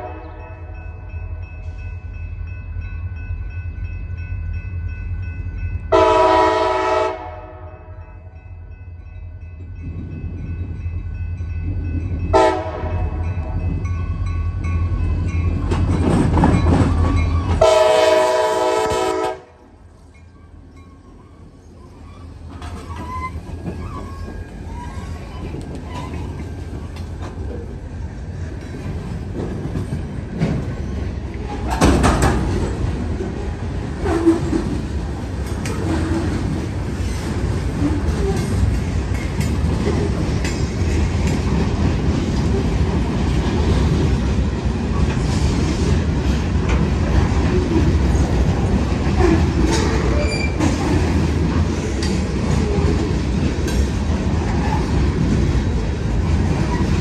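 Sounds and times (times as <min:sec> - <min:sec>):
freight train wheels clattering: 0:11.4 - 0:18.3, 0:20.0 - 0:57.0.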